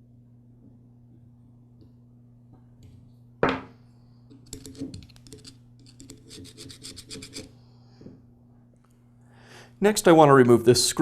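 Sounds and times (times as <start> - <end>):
faint steady hum: 0.0 - 11.0
small tool scraping metal: 4.4 - 7.5.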